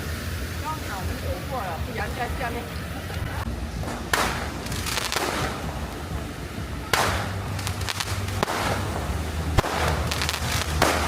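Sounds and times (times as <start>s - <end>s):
firework crackling: 0.0s - 11.0s
distant firework bangs: 3.4s - 11.0s.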